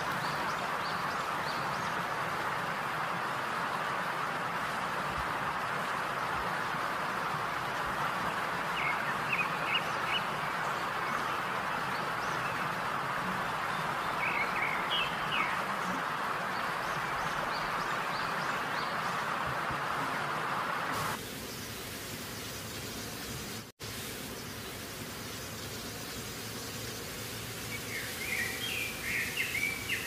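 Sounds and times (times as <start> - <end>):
food sizzling in hot oil: 21.0 - 29.7.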